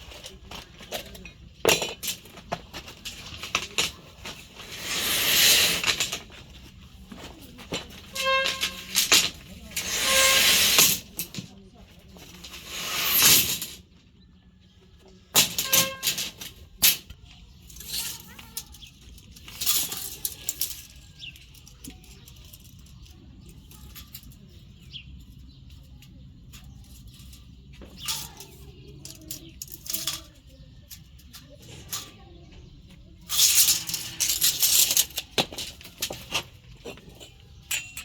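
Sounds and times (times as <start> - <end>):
metal pieces clanking and scraping: 0.0 - 13.8, 15.3 - 25.8, 26.4 - 32.3, 33.2 - 38.0.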